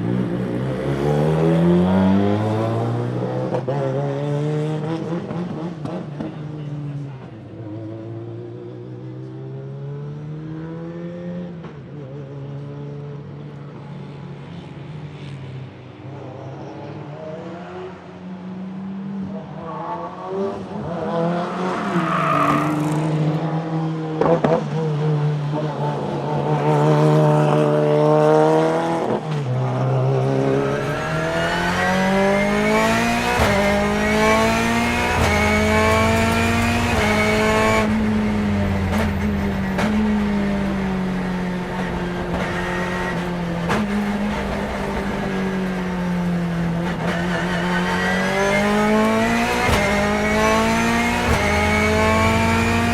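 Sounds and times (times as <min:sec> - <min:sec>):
race car engine accelerating: 0:25.5 - 0:52.9.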